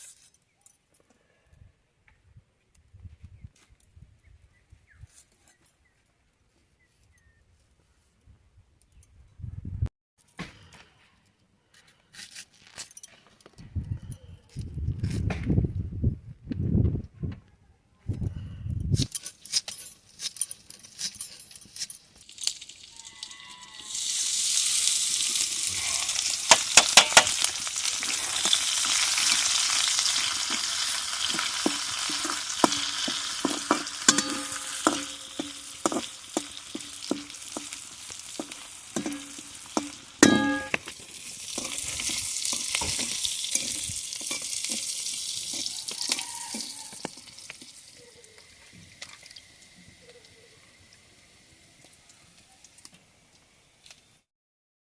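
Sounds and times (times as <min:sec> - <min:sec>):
food sizzling in hot oil: 0:22.2 - 0:49.8
metal spatula knocking on pan: 0:26.5 - 0:27.4, 0:31.6 - 0:37.8, 0:38.4 - 0:40.8.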